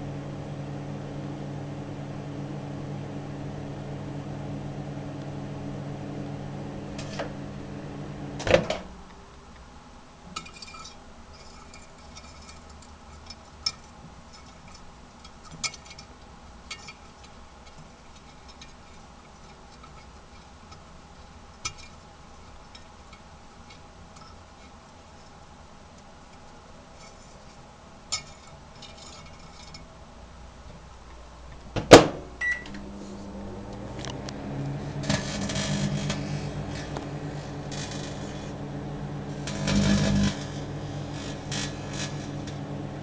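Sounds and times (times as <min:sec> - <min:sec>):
microwave oven humming: 0:00.0 - 0:10.4, 0:30.2 - 0:43.0
microwave clunk: 0:08.4 - 0:08.9, 0:31.8 - 0:32.9.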